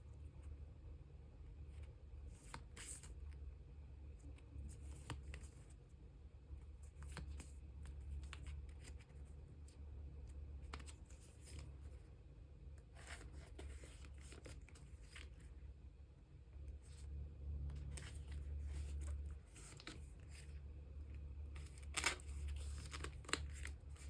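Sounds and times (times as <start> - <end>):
steady low hum: 0.0 - 24.0
light clicks and crinkles: 4.0 - 5.9, 6.6 - 12.1, 12.7 - 15.6, 16.6 - 24.0
plastic sleeves rustling: 12.8 - 15.6, 17.7 - 24.0.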